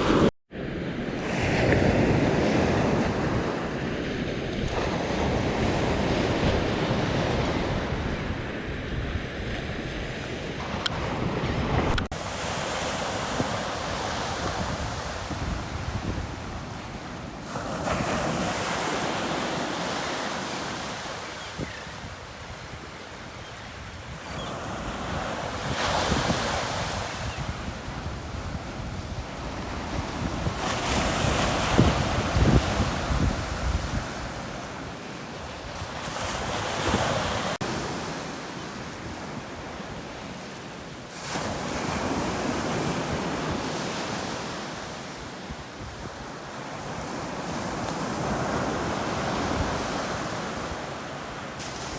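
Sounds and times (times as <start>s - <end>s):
wind buffeting microphone: 0.0s - 37.6s
sea waves breaking on beach: 0.0s - 51.9s.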